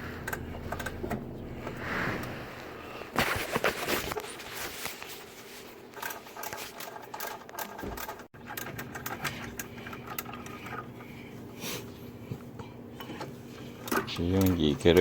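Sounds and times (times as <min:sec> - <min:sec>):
rapid clicking and rattling: 0:05.9 - 0:11.4, 0:13.2 - 0:15.0.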